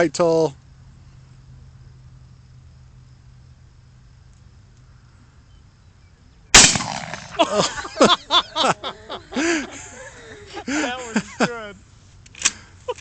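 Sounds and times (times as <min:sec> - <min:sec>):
shotgun blast with echo: 0:06.6 - 0:07.4
people's voices: 0:07.4 - 0:11.8.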